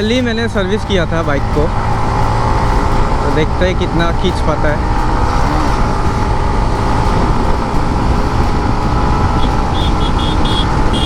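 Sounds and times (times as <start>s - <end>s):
motorcycle engine under throttle: 0.0s - 11.0s
wind rumbling on microphone: 0.0s - 11.0s.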